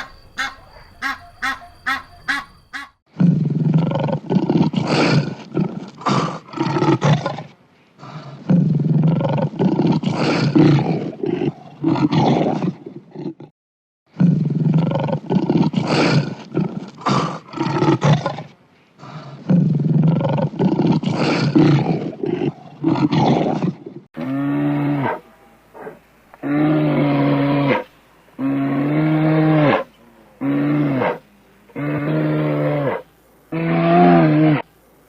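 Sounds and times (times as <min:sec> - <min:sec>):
big cat roaring: 0:03.6 - 0:13.5, 0:14.2 - 0:34.6
cow mooing: 0:24.2 - 0:34.6.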